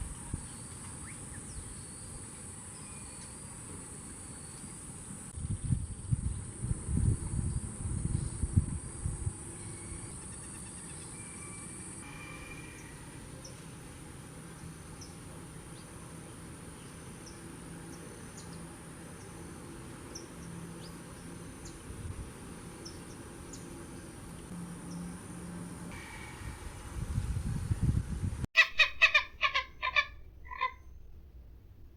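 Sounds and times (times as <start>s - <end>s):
small birds chirping: 28.6s - 31.1s.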